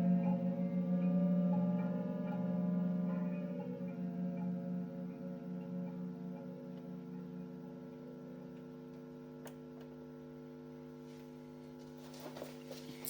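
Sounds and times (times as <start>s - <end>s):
electronic drone: 0.0s - 8.9s
electrical hum of held tones: 0.0s - 13.0s.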